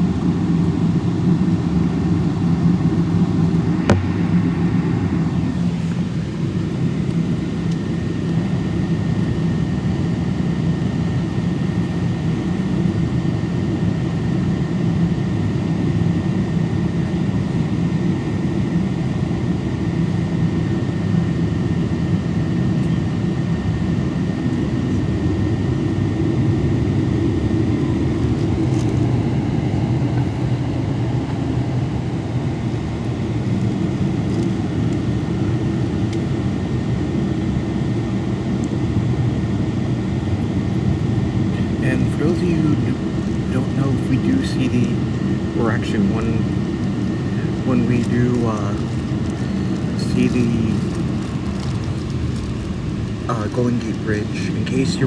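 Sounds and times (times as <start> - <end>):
aircraft cabin rumble: 0.0 - 55.0
faint high whine: 2.9 - 7.6, 26.0 - 55.0.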